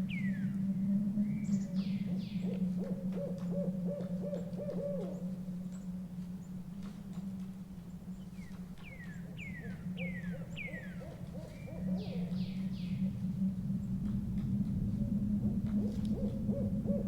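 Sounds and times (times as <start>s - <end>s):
owl hooting: 0.2s - 5.6s, 8.8s - 13.6s, 14.8s - 17.0s.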